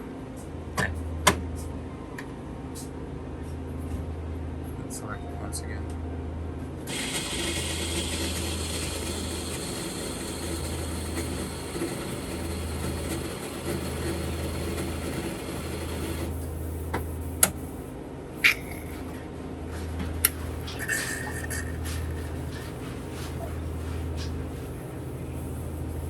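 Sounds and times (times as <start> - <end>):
coffee machine whirring and hissing: 6.8 - 26.0.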